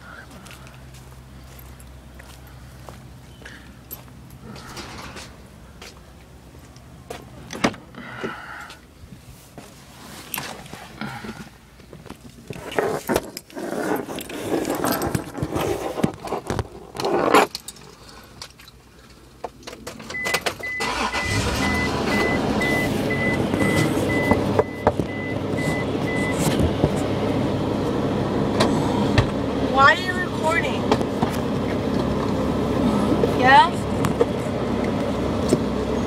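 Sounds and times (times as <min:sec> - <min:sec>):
car engine starting and running: 0:00.0 - 0:09.0, 0:16.4 - 0:36.0
dashboard warning chime beeping: 0:20.1 - 0:26.6.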